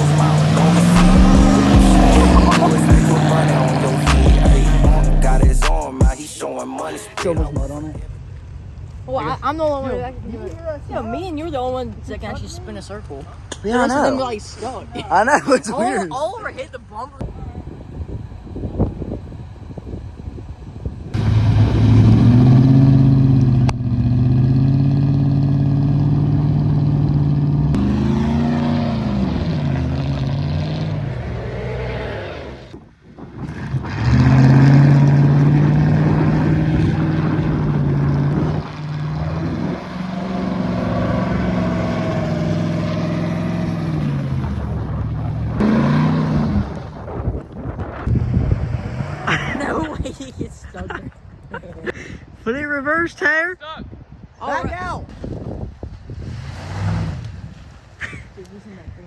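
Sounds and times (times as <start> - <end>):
pickup truck engine revving: 0.0 - 8.9, 21.2 - 32.8, 33.4 - 47.2, 56.3 - 57.3.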